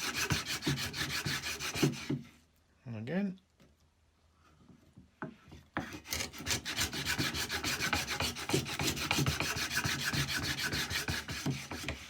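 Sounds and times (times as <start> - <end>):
plane blade scraping wood: 0.0 - 2.3, 5.8 - 12.0.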